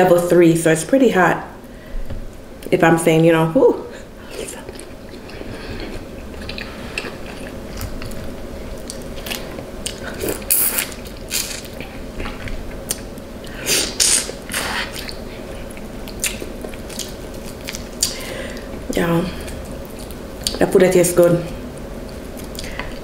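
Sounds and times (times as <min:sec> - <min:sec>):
person biting and chewing: 0:04.7 - 0:13.1.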